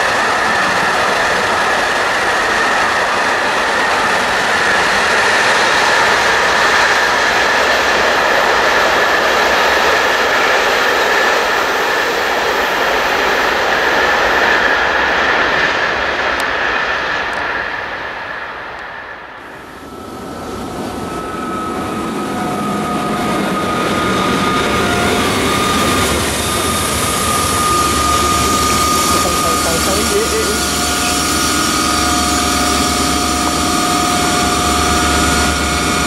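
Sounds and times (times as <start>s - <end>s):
freight train rolling on rails: 0.0s - 36.0s
high steady tone: 19.7s - 36.0s.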